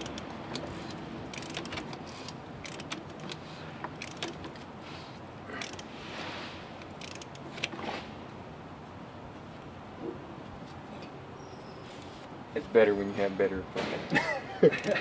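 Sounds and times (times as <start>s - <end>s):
metallic clicks of hand tools: 0.0s - 4.6s, 6.8s - 7.7s, 14.8s - 15.0s
steady background hum: 0.0s - 15.0s
short hiss: 5.9s - 6.7s.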